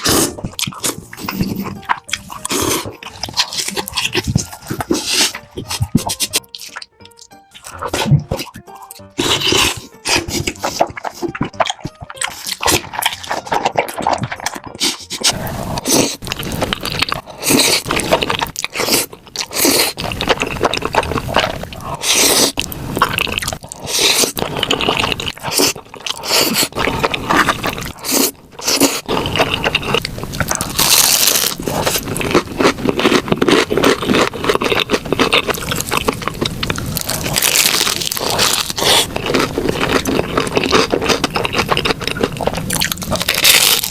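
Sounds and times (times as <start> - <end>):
person crunching food: 0.0 - 43.9
wet mouth sounds: 0.0 - 43.9.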